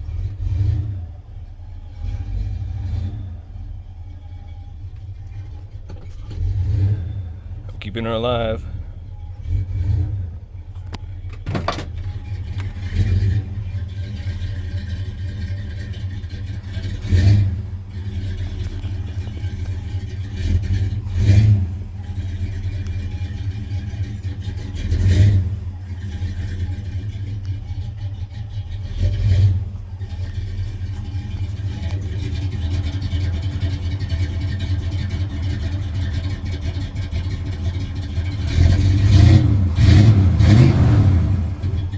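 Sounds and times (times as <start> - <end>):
truck engine throttle blips: 0.0 - 41.9.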